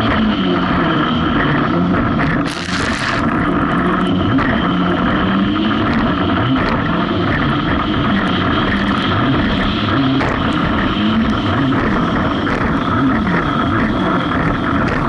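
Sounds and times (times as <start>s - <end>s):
jet ski engine running: 0.0s - 15.0s
rush of spray or wind: 2.4s - 3.5s.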